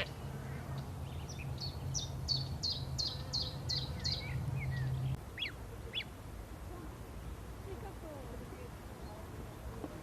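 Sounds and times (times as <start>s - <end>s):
bird chirping: 0.0s - 6.2s.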